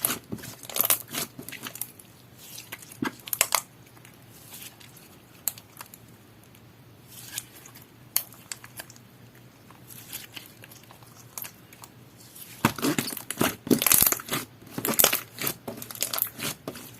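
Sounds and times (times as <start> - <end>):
slime crackling and popping: 2.5 - 3.7, 12.4 - 16.9.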